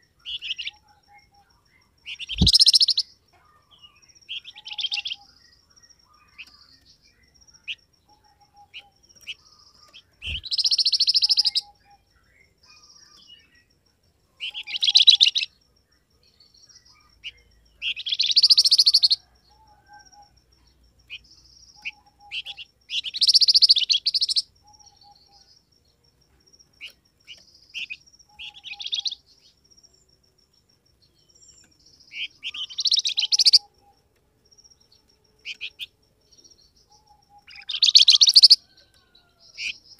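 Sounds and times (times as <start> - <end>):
bird chattering song: 0.0 - 13.8, 14.4 - 15.5, 16.2 - 25.6, 26.8 - 30.0, 31.0 - 34.0, 34.8 - 39.9
short high bird chirps: 2.1 - 3.0, 10.2 - 11.7.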